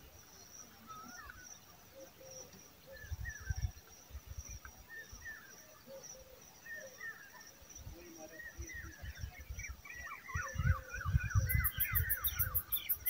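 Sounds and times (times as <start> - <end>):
birds chirping: 4.8 - 13.0
wind thumps on microphone: 10.4 - 12.6.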